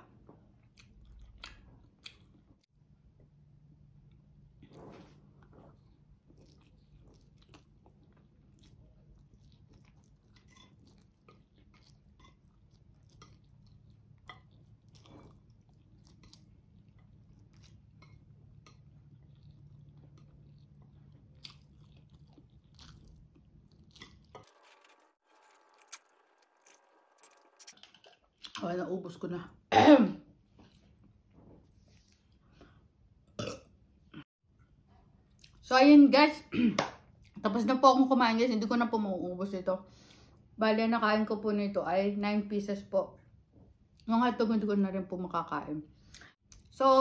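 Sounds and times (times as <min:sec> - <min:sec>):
faint chewing with mouth clicks: 0:00.1 - 0:03.4, 0:04.0 - 0:28.6, 0:34.6 - 0:35.6, 0:46.0 - 0:46.7.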